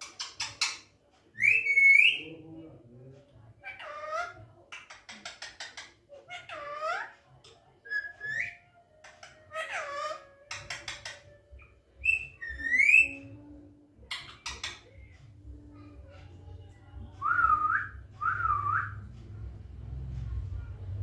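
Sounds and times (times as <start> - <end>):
parrot whistling: 7.9 - 13.2.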